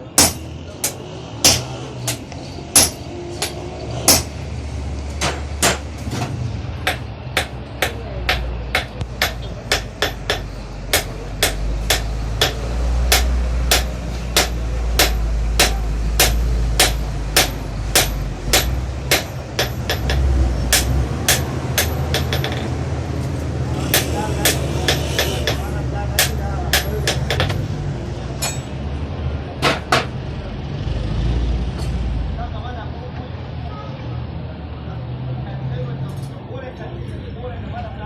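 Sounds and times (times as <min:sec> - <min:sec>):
hammer striking metal on anvil: 0:00.2 - 0:04.4, 0:06.8 - 0:22.8, 0:23.9 - 0:27.6, 0:28.4 - 0:28.7.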